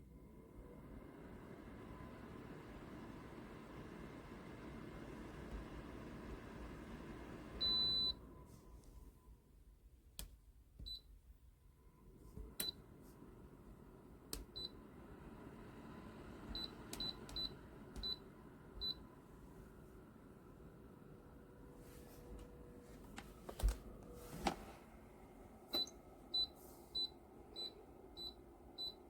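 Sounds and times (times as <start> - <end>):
heater running noise: 0.0 - 9.2, 11.8 - 29.0
control panel beeps: 25.7 - 29.0.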